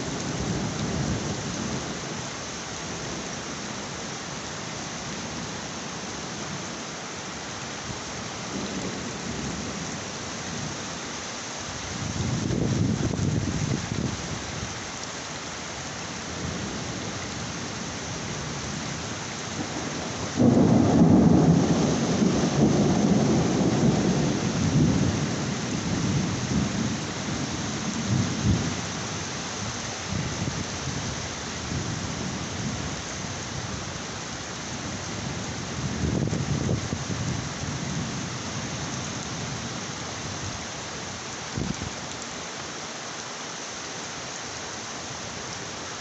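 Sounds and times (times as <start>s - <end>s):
heavy rain falling: 0.0s - 46.0s
thunder clap and rumble: 19.6s - 27.0s.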